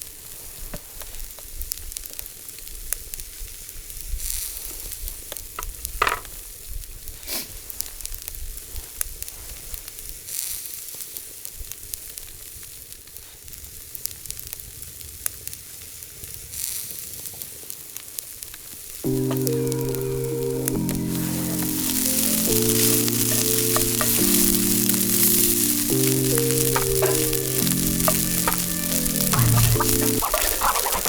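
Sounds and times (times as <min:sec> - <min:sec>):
steak sizzling in a frying pan: 0:19.0 - 0:31.0.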